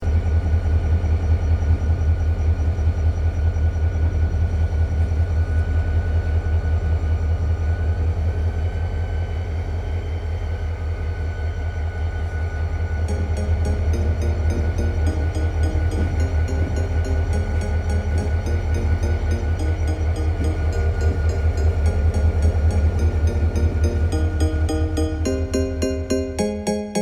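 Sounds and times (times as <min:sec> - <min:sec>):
diesel locomotive rumbling: 0:00.0 - 0:27.0
thin high whine: 0:13.1 - 0:27.0.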